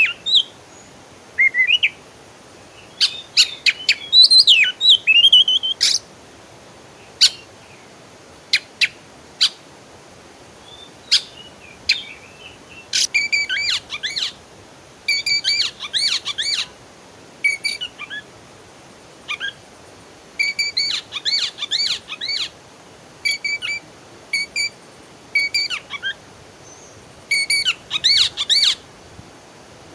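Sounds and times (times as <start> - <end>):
songbirds chirping: 0.0 - 6.2, 10.4 - 14.5
faint steady hiss: 0.0 - 29.9.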